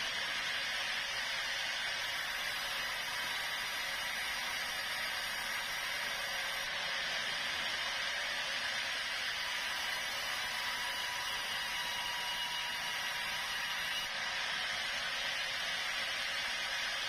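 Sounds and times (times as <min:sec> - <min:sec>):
sawmill saw running: 0:00.0 - 0:17.0.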